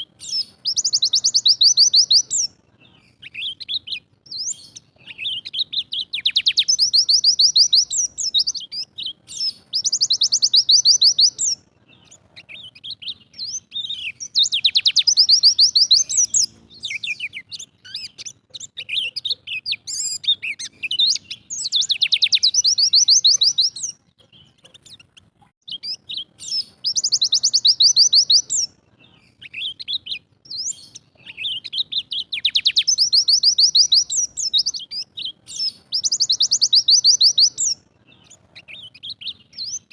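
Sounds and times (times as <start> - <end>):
bird fast trilling song: 0.0 - 39.9
soft bird chirps: 0.0 - 39.9.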